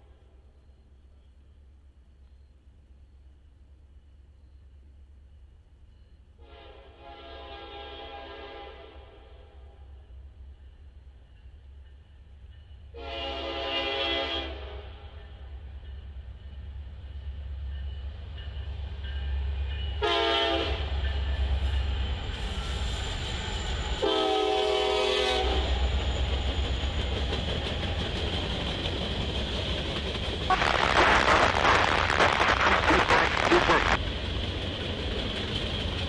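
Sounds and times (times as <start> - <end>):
train passing with rushing clatter: 6.4 - 36.0
locomotive horn blasts: 13.0 - 14.8, 20.0 - 20.8, 24.0 - 25.6.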